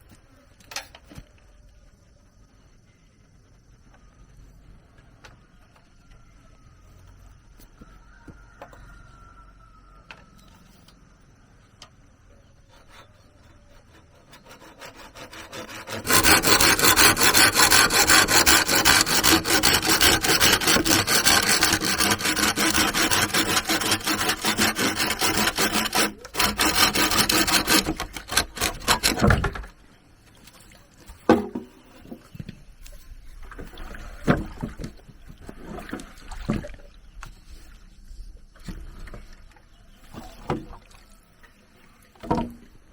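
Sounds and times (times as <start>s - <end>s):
saw cutting bamboo: 12.7s - 29.6s.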